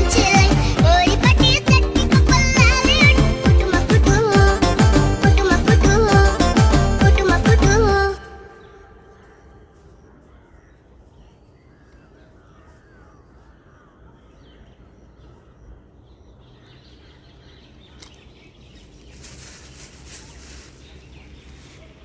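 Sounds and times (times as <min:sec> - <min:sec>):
birds chirping: 0:07.2 - 0:22.0.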